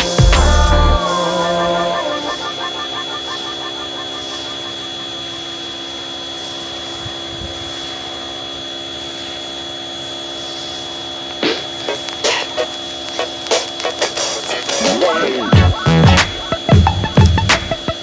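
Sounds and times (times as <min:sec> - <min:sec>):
rubbing hiss of car washing: 0:11.4 - 0:16.6.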